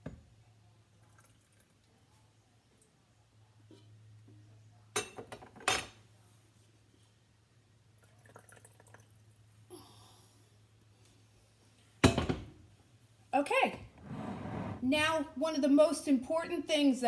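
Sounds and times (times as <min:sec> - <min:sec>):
sauce pouring: 0:08.0 - 0:09.2.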